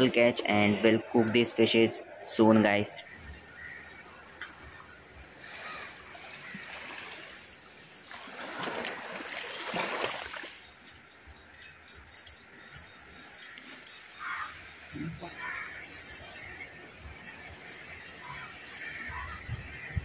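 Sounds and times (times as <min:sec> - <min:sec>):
water running and splashing: 0:05.4 - 0:11.0.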